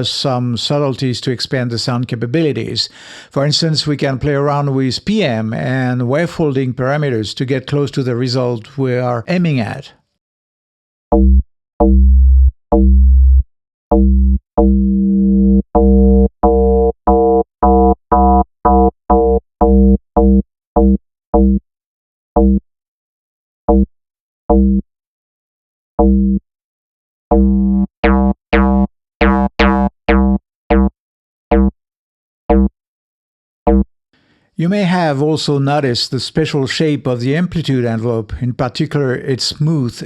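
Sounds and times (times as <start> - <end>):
plucked synth bass notes: 11.1 - 21.6, 22.4 - 22.6, 23.7 - 23.9, 24.5 - 24.8, 26.0 - 26.4, 27.3 - 31.8, 32.5 - 32.8, 33.7 - 33.9.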